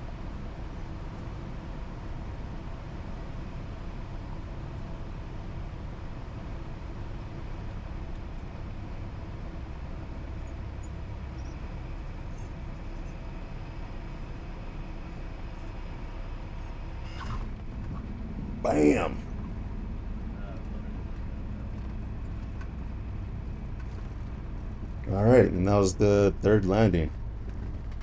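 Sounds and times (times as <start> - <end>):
aircraft engine and propeller droning: 0.0 - 28.0.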